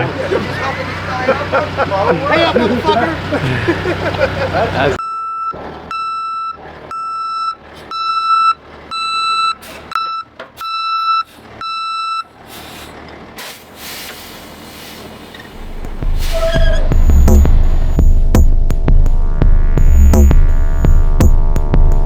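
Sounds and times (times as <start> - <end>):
reversing alarm beeping: 5.0 - 12.3, 15.6 - 21.0.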